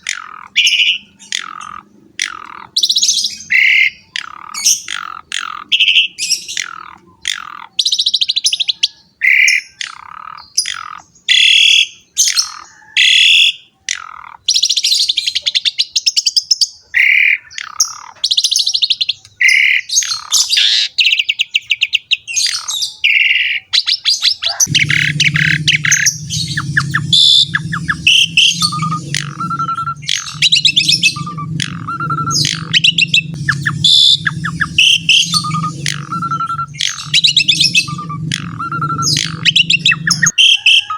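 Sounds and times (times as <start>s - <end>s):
starling singing: 24.5s - 40.6s
low hum: 24.6s - 40.4s.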